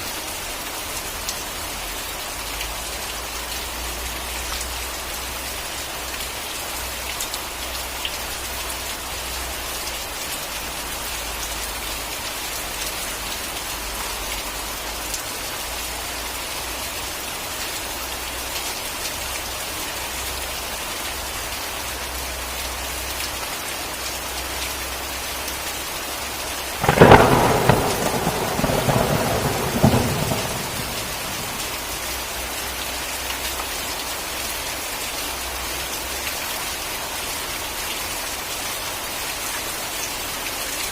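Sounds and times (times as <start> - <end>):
heavy rain falling: 0.0 - 40.9
thunderclap rumbling: 26.8 - 32.1.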